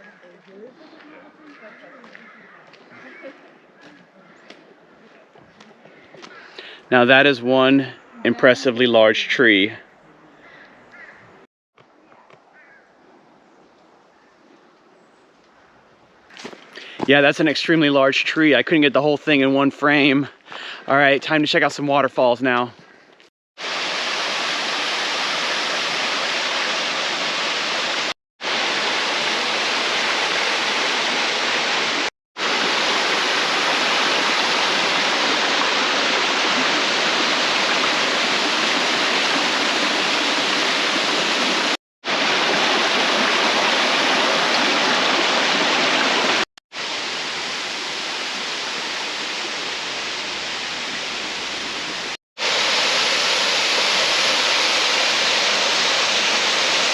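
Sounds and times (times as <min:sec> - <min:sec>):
waterfall roaring: 0:23.6 - 0:56.9.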